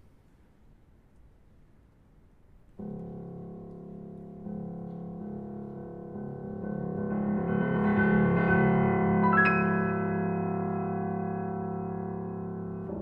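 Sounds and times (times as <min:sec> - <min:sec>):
piano playing chords: 0:02.8 - 0:13.0.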